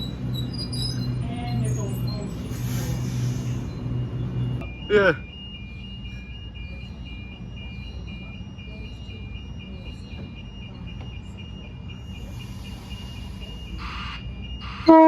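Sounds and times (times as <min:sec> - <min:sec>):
train rumbling: 0:00.0 - 0:04.8, 0:05.6 - 0:15.0
level crossing two-note alarm: 0:00.0 - 0:15.0.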